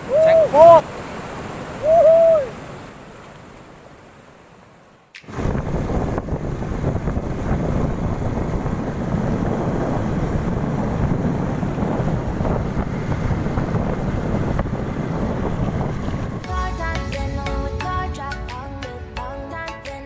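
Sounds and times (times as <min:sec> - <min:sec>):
sea surf: 0:00.0 - 0:20.0
wind buffeting microphone: 0:05.2 - 0:19.2.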